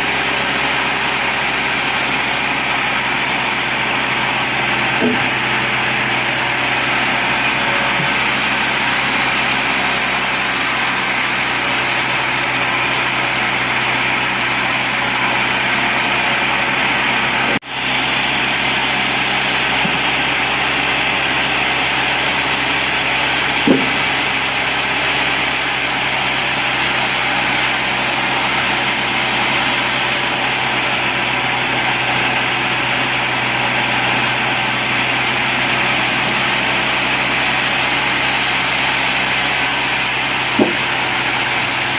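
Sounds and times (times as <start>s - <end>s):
bandsaw sawing wood: 0.0s - 41.9s
short knock: 5.0s - 5.4s, 23.7s - 24.0s, 40.6s - 40.9s.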